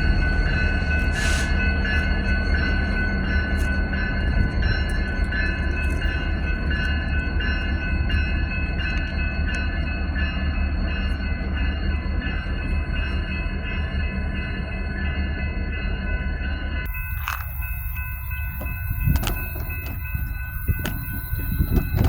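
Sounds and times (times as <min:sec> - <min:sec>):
train rumbling: 0:00.0 - 0:22.0
clicks: 0:16.9 - 0:22.0
high ringing tones: 0:16.9 - 0:22.0.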